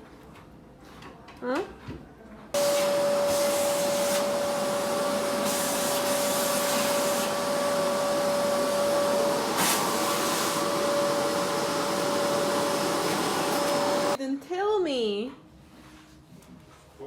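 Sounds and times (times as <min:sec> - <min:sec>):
vacuum cleaner running: 0:02.6 - 0:14.2.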